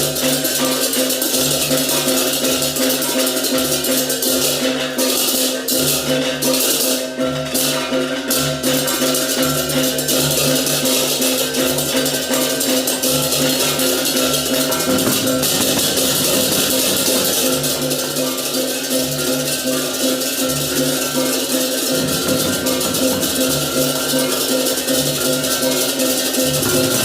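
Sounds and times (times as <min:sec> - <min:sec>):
crashing cymbals: 0:00.0 - 0:27.0
drums: 0:00.0 - 0:27.0
ringing gong: 0:08.3 - 0:27.0.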